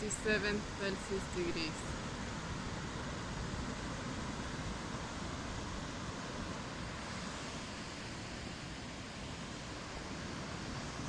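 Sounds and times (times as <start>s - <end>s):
ocean surf on sandy beach: 0.0s - 11.0s.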